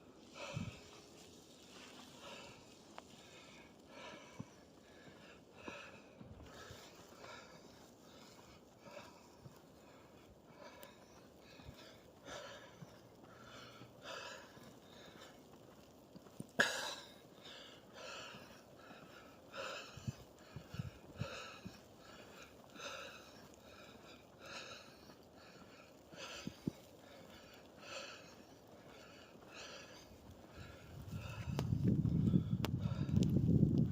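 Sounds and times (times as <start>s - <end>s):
footsteps crunching in snow: 0.0s - 10.0s.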